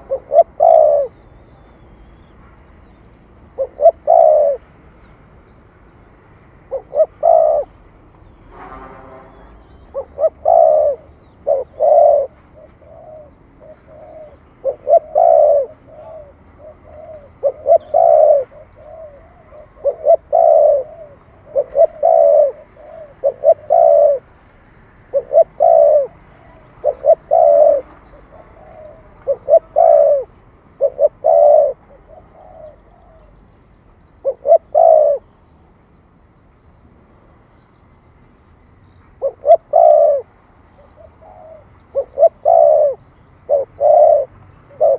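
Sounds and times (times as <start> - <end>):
dove cooing: 0.0 - 4.7, 6.6 - 7.9, 9.8 - 24.4, 25.0 - 33.4, 34.2 - 35.4, 39.2 - 44.9.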